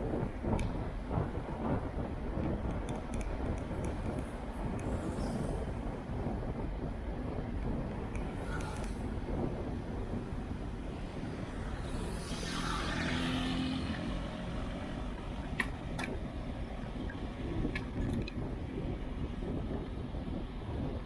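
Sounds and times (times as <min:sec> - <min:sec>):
wind buffeting microphone: 0:00.0 - 0:21.0
sharp clicks: 0:02.7 - 0:04.0
vehicle passing close by: 0:11.0 - 0:15.9.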